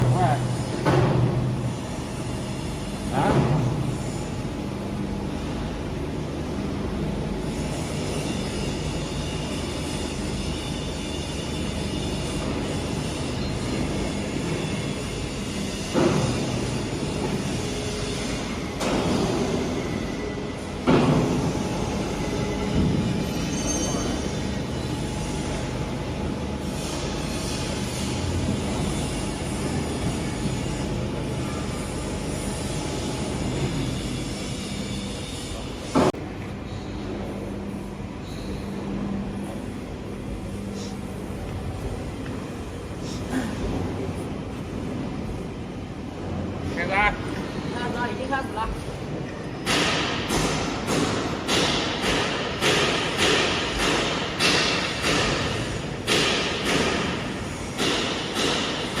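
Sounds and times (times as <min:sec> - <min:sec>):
high squeal-like tone: 0:23.2 - 0:24.4.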